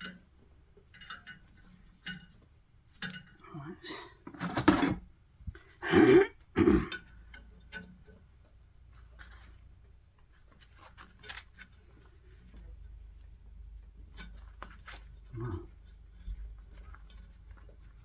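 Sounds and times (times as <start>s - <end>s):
man coughing and clearing throat: 5.8s - 7.0s.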